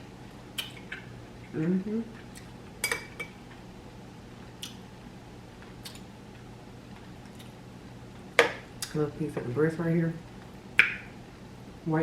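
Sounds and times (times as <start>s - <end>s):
faint low hum: 0.0s - 12.0s
chewing and utensil clicks: 5.8s - 6.1s.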